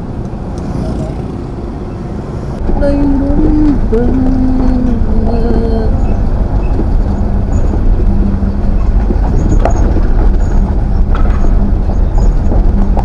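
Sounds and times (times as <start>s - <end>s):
road noise: 0.0s - 13.0s
truck engine rumbling: 0.0s - 13.0s.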